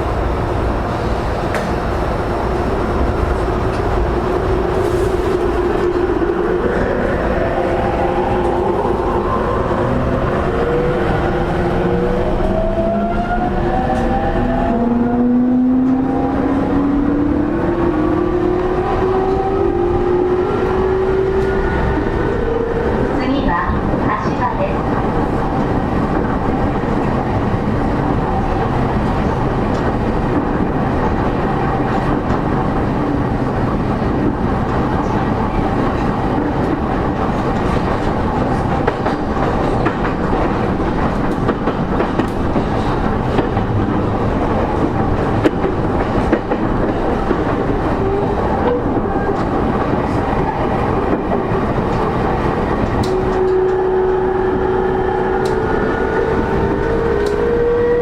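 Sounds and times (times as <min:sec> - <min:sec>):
rail-joint clicks: 0:01.4 - 0:01.9, 0:36.0 - 0:52.2, 0:52.8 - 0:54.2, 0:55.3 - 0:57.5.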